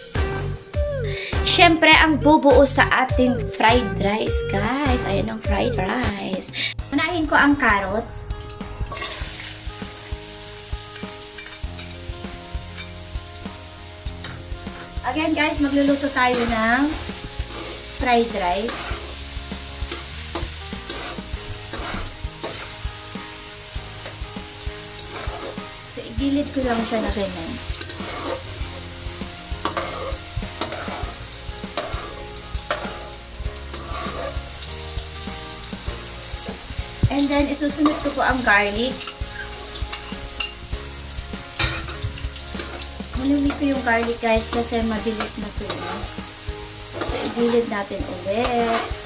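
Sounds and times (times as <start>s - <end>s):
metal spatula scraping a wok: 8.5s - 9.6s, 10.9s - 12.0s, 12.7s - 13.0s, 14.1s - 22.9s, 24.9s - 25.8s, 26.5s - 34.7s, 37.5s - 46.2s, 46.8s - 49.0s
vegetables sizzling in hot oil: 8.6s - 49.0s.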